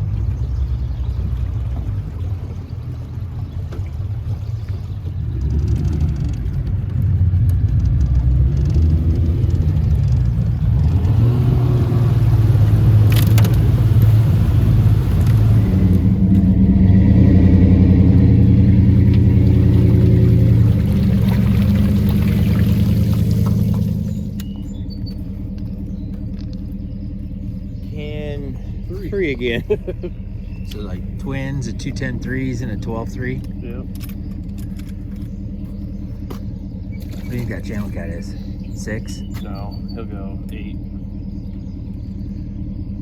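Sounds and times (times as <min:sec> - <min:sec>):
engine running under load: 0:00.0 - 0:43.0.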